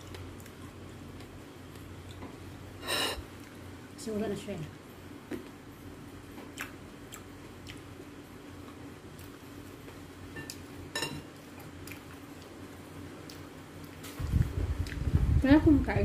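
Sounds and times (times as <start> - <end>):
grapes being chewed: 0.0 - 2.4, 6.3 - 8.0, 8.6 - 10.7, 11.4 - 12.6, 13.2 - 15.1.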